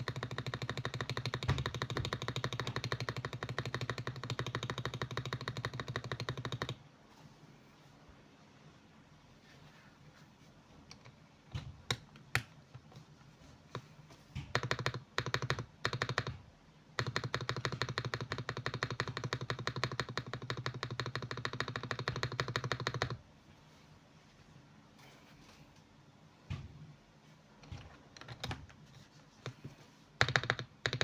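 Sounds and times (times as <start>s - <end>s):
mechanical keyboard typing: 0.0s - 6.8s, 14.5s - 16.4s, 17.0s - 23.2s, 27.6s - 28.8s, 30.2s - 31.0s.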